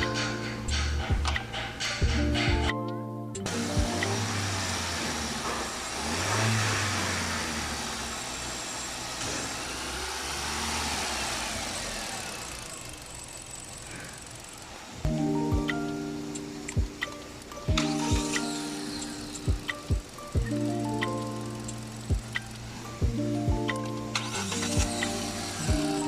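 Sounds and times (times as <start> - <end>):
car engine revving: 3.5 - 15.0, 24.1 - 26.0.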